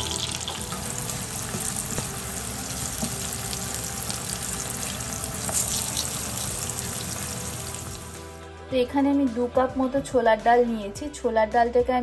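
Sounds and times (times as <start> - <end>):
vegetables sizzling in oil: 0.0 - 8.4.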